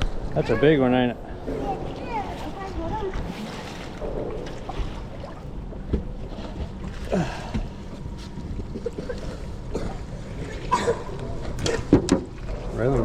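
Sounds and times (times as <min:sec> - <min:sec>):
boat engine rumble: 0:00.0 - 0:13.0.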